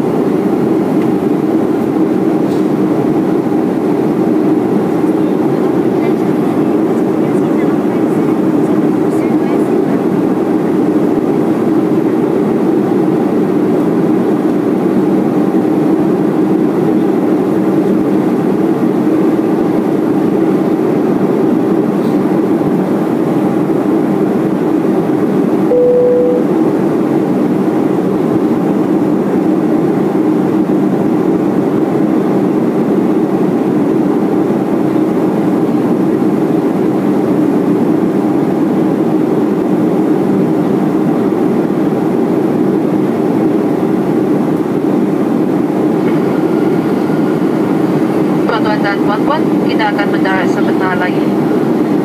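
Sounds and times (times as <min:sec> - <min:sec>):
airplane cabin noise: 0:00.0 - 0:52.0
brief steady tone: 0:25.7 - 0:26.6.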